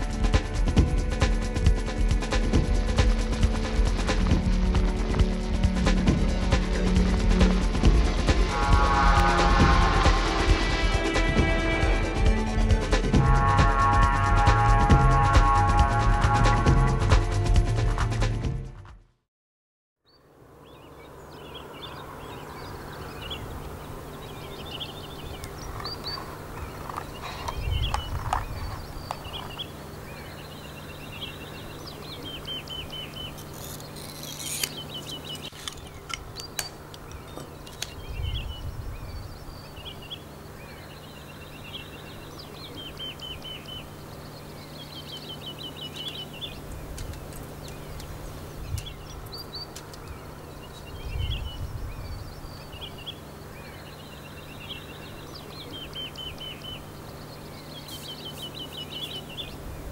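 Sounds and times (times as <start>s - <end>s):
steady low hum: 0.0s - 17.0s, 20.2s - 59.9s
songbirds chirping and trilling: 20.0s - 59.9s.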